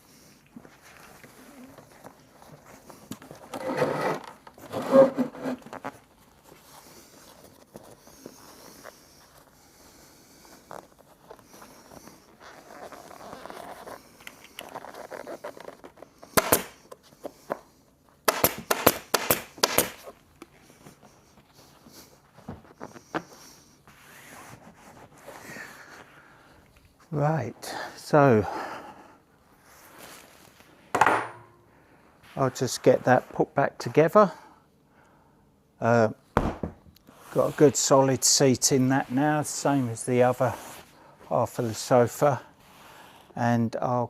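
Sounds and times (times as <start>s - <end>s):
scraping and rubbing: 0.8s - 9.5s.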